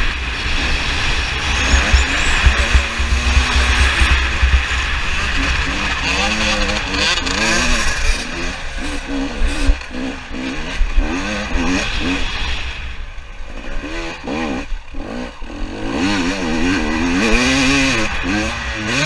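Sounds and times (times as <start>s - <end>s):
wind on microphone: 0.0s - 9.8s
dirt bike engine revving: 0.0s - 19.0s.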